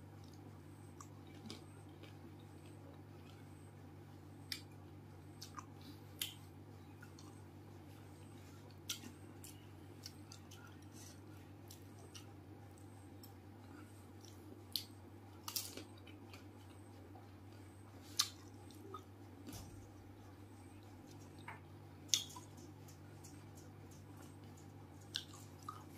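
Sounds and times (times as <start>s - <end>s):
wet chewing squishes: 20.2s - 25.9s.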